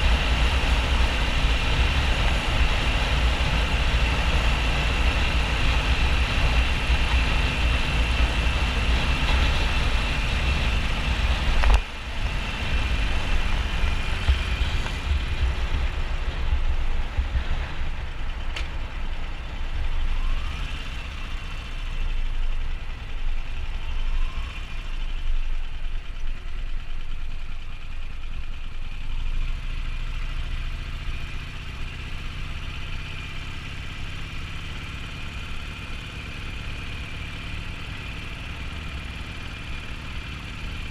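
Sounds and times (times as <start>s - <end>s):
wind rumble on microphone: 0.0s - 20.8s
motorcycle engine running: 0.0s - 40.9s.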